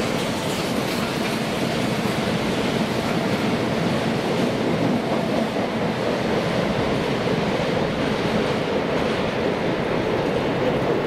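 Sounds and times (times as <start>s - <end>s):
freight wagons rolling on rails: 0.0s - 3.6s.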